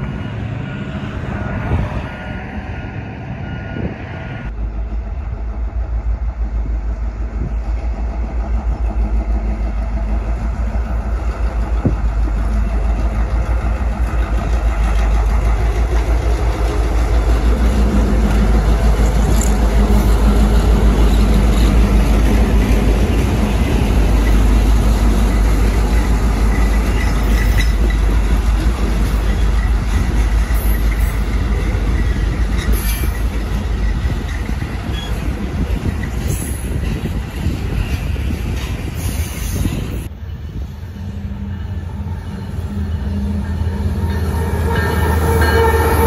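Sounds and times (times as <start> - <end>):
diesel locomotive engine rumble: 0.0 - 46.0
freight cars rolling on rails: 4.6 - 46.0.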